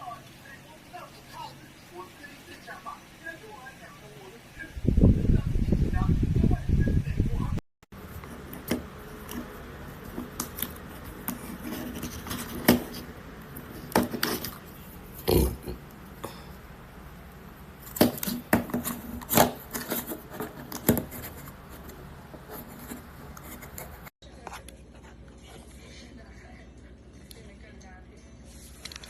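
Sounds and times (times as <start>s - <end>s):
rubbing: 17.8s - 24.1s.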